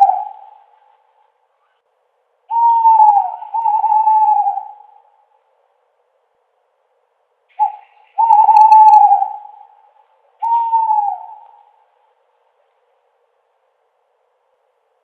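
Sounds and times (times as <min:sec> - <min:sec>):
owl hooting: 0:00.0 - 0:01.8, 0:02.5 - 0:05.3, 0:07.5 - 0:11.9.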